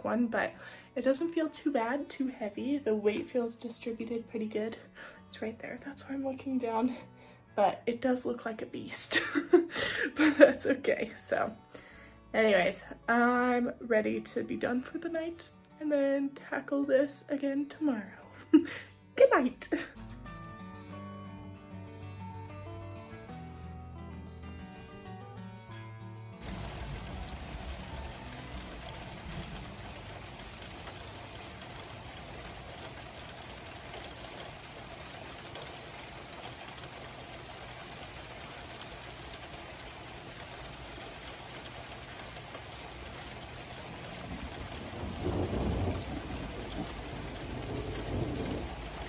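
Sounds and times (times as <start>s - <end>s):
steady rain falling: 9.1s - 10.7s, 26.4s - 49.0s
low roll of thunder: 26.4s - 34.8s, 43.7s - 49.0s.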